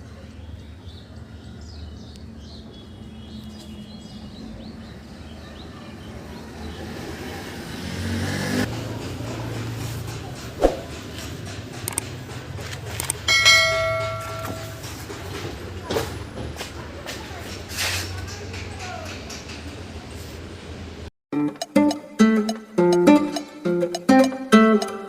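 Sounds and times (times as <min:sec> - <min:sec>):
vehicle engine rumble: 0:02.2 - 0:21.1
sharp knock: 0:10.6 - 0:11.0
light clicks: 0:11.8 - 0:12.1.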